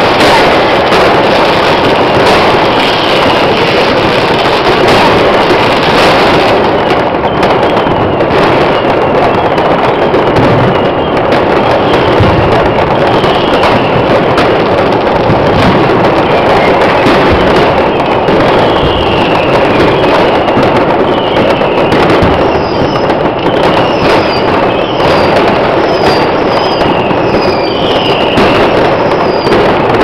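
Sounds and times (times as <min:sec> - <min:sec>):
faint firework whistles: 0:00.0 - 0:30.0
fireworks crackling and banging: 0:00.0 - 0:30.0.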